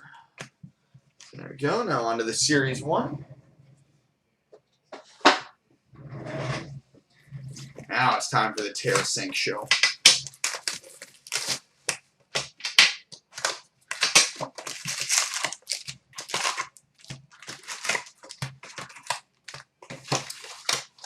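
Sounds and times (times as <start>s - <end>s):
plastic wrapping tearing and crinkling: 7.6s - 21.0s.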